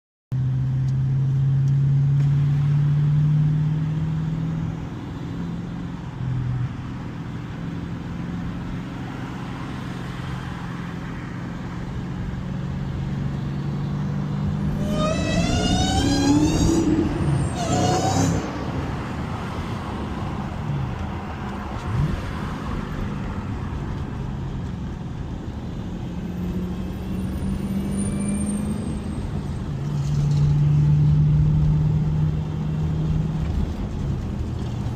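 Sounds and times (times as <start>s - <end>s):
car engine revving: 14.4s - 20.1s.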